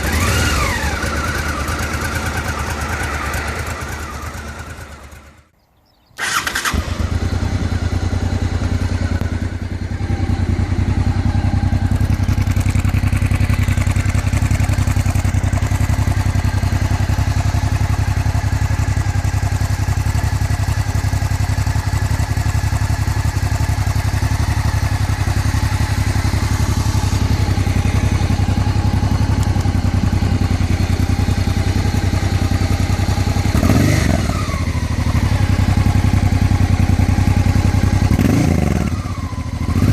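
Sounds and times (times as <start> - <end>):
motorcycle engine starting and idling: 0.0 - 39.9.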